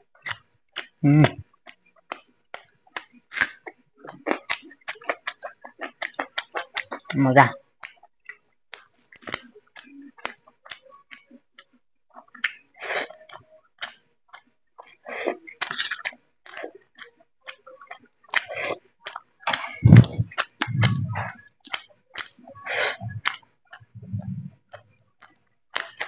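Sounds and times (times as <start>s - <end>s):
man chewing food: 0.2s - 7.2s, 7.8s - 26.0s
wet mouth clicks and smacks: 15.6s - 26.0s
low voiced sound: 19.8s - 21.3s.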